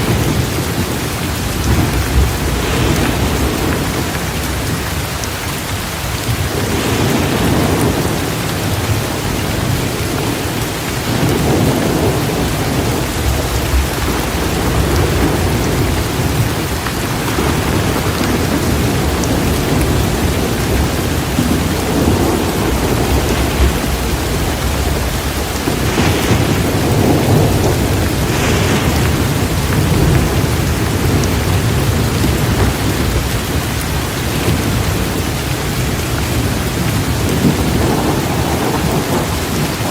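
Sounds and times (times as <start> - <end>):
thunder rumbling: 0.0 - 39.9
torrential rain: 0.0 - 39.9.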